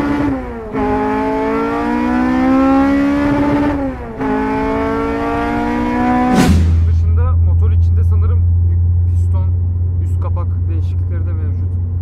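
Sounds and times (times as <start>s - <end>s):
car engine revving high: 0.0s - 7.8s
quick gear upshifts: 0.0s - 12.0s.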